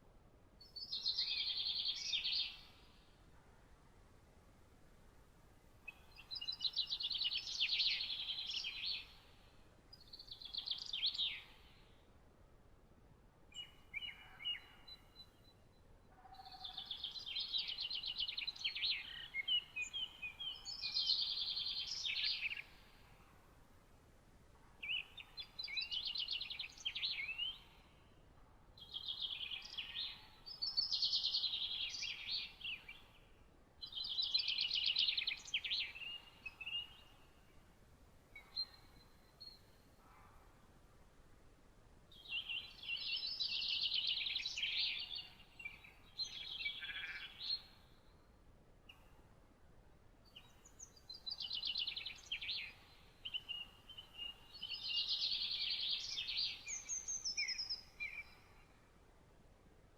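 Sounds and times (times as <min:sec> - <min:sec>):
songbird trilling song: 0:00.6 - 0:03.0, 0:05.8 - 0:12.0, 0:13.5 - 0:23.4, 0:24.8 - 0:28.1, 0:28.8 - 0:37.6, 0:38.3 - 0:40.4, 0:42.1 - 0:49.2, 0:50.2 - 0:58.9
thin whistled bird notes: 0:28.8 - 0:37.5, 0:50.3 - 0:58.8.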